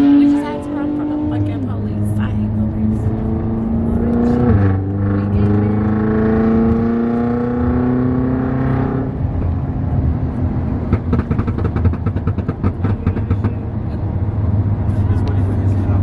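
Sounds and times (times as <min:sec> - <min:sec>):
car engine revving: 0:00.0 - 0:16.0
rapid sharp pops: 0:10.9 - 0:13.6.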